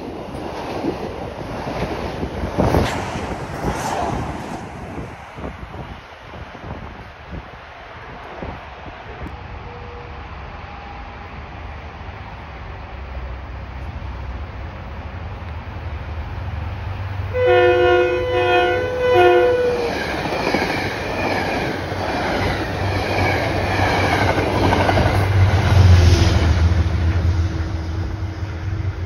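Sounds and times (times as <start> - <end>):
train wheels on rails: 0.0 - 17.3, 18.6 - 29.0
deep train rumble: 0.0 - 29.0
train horn blast: 17.3 - 20.0.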